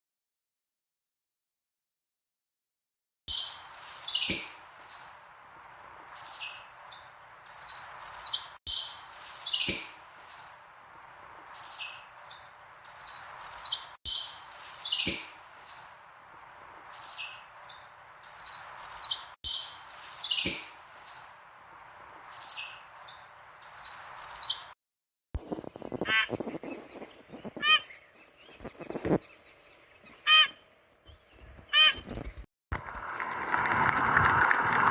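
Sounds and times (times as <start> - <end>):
high-pitched chirping calls: 3.3 - 5.2, 6.0 - 10.7, 11.3 - 21.5, 22.1 - 24.8, 25.4 - 32.4
fowl honking: 27.5 - 27.9, 30.2 - 30.6.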